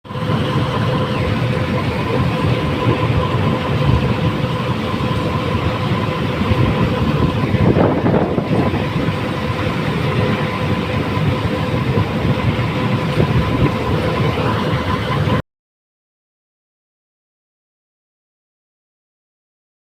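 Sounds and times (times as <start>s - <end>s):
diesel engine rumble: 0.0s - 15.4s
steady whine: 0.0s - 15.4s.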